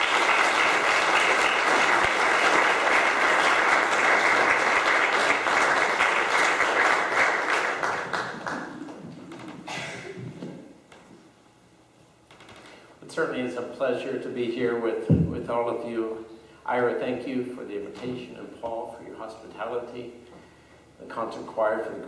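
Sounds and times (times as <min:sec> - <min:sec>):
congregation applauding: 0:00.0 - 0:10.6.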